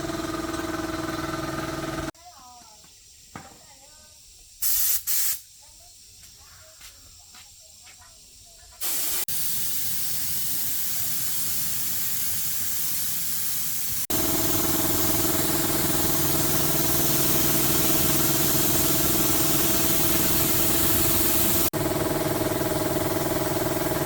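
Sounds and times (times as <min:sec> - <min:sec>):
pressurised spray hissing: 0:03.9 - 0:06.7, 0:07.5 - 0:21.8
motor humming: 0:14.1 - 0:24.0.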